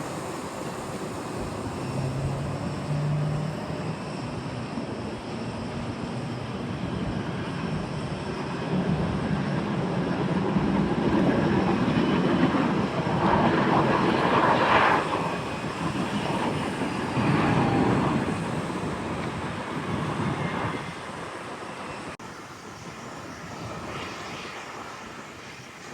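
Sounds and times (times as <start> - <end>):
jet airliner passing: 0.0 - 25.9.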